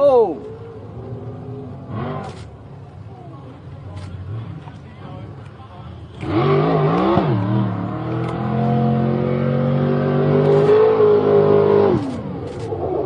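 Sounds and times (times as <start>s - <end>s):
car engine revving: 6.1s - 13.0s.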